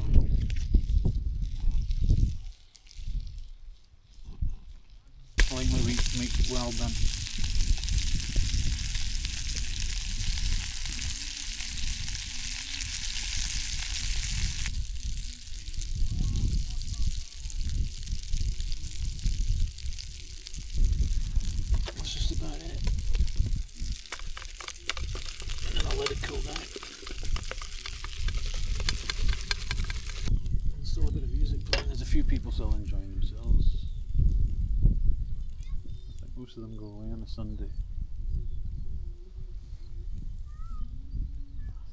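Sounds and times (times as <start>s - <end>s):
food sizzling in oil: 5.4s - 30.5s.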